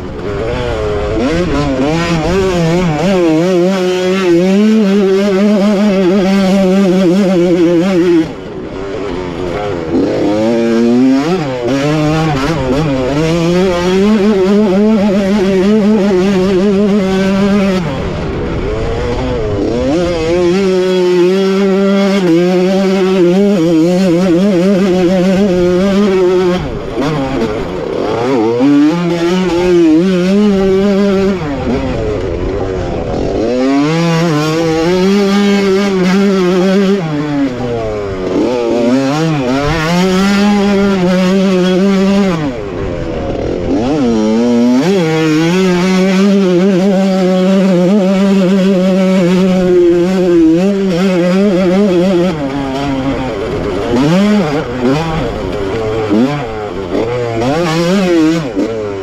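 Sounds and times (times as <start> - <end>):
two-stroke engine revving high: 0.0 - 59.0.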